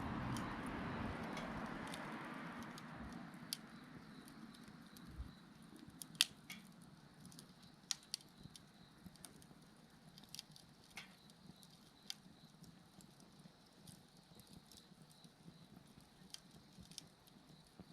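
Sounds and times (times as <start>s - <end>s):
wood fire crackling: 0.0s - 17.9s
insect chirps: 3.3s - 5.8s, 7.0s - 9.3s, 10.2s - 17.9s.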